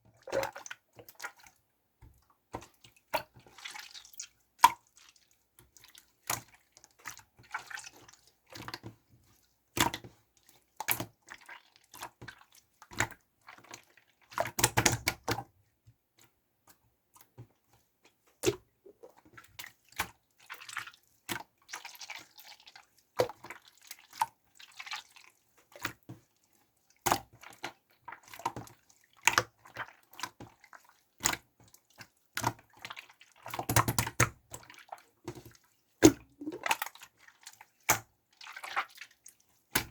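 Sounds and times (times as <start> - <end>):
slime squelching and popping: 36.0 - 36.9.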